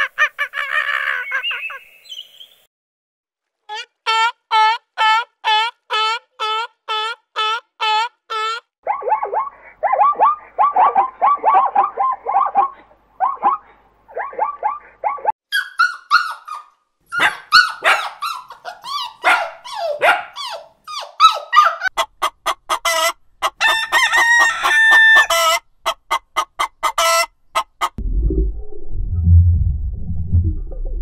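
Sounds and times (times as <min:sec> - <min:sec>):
barking yelps: 0:08.4 - 0:22.0
puppy whining and yelping: 0:08.9 - 0:21.9
chicken clucking: 0:21.4 - 0:28.0.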